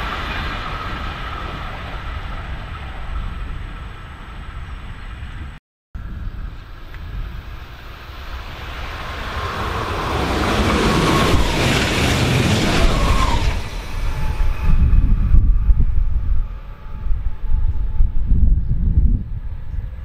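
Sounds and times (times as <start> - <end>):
train rushing on rails: 0.0 - 20.0
heavy low rumbling: 2.4 - 20.0.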